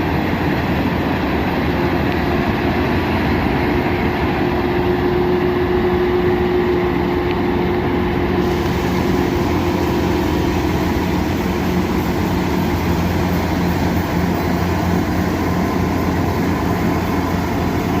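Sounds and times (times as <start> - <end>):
diesel engine humming: 0.0 - 18.0
bright hiss: 8.4 - 18.0
machinery rattling: 8.4 - 18.0.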